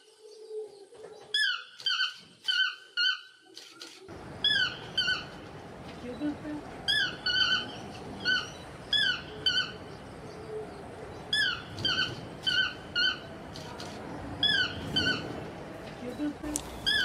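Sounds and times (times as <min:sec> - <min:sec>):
bird squeaky calls: 0:04.4 - 0:05.4, 0:06.9 - 0:10.0, 0:11.3 - 0:15.4, 0:16.8 - 0:17.0.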